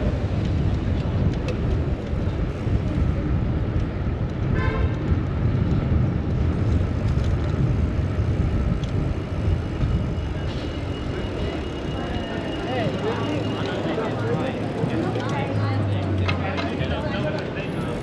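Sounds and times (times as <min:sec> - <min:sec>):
wind rumbling on microphone: 0:00.0 - 0:11.8
city street traffic: 0:00.0 - 0:18.0.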